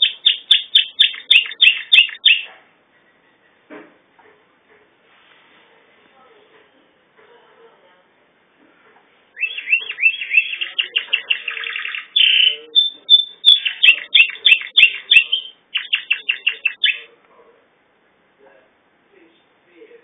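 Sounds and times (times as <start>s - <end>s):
canary singing: 0.0s - 2.6s, 9.4s - 17.2s.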